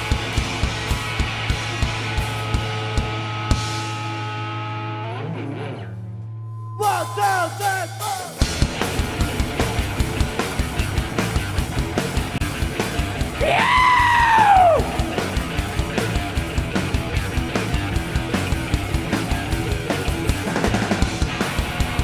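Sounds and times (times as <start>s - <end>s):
drums fast beat: 0.0s - 4.1s, 6.8s - 22.0s
rock band playing: 0.0s - 5.9s, 6.8s - 22.0s.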